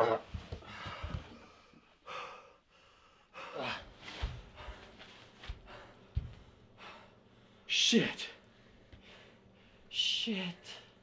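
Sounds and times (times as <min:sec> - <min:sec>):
person gasping and breathing hard: 0:00.6 - 0:07.3.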